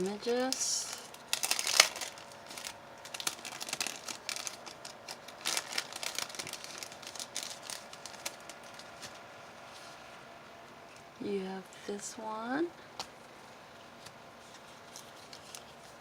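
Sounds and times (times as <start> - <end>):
paper and packaging crinkling: 0.0 - 10.0, 14.4 - 16.0.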